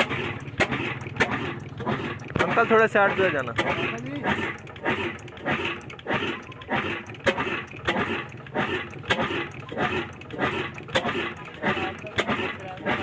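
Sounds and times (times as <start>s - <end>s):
diesel engine exhaust chuffing: 0.0s - 13.0s.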